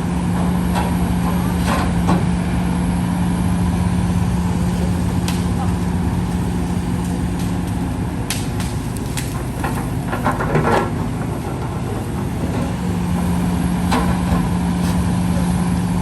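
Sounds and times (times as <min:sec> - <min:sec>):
diesel engine running under load: 0:00.0 - 0:16.0
metallic knocks and clanking: 0:04.4 - 0:15.0.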